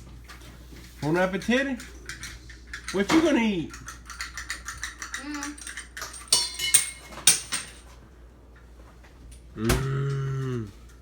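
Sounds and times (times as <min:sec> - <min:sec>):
tableware clattering: 0:04.2 - 0:07.8
held vocal sound: 0:09.6 - 0:10.9.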